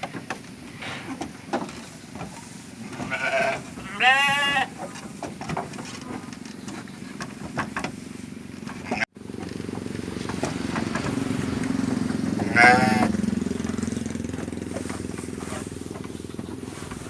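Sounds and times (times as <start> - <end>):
goat bleating: 2.8 - 4.8, 12.4 - 13.2.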